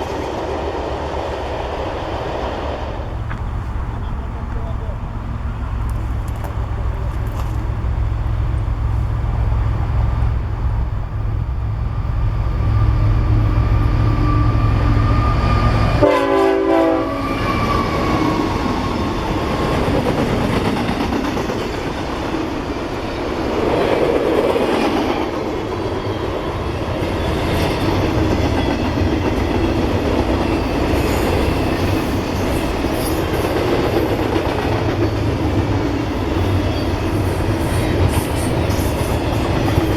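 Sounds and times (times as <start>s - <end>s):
diesel locomotive rumble: 1.8s - 39.9s
train wheels clacking on rail joints: 2.3s - 11.5s, 18.6s - 39.9s
train horn: 12.8s - 18.6s.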